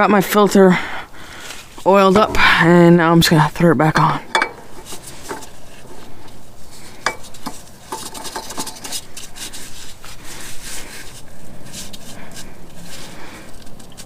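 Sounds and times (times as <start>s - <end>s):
oil filter rasping on threads: 3.9s - 14.0s.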